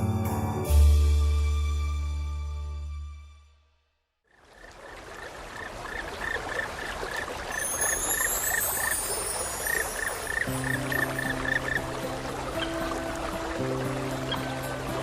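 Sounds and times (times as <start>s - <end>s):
frog croaking: 4.3s - 9.0s, 9.6s - 13.0s
flowing stream: 4.3s - 15.0s.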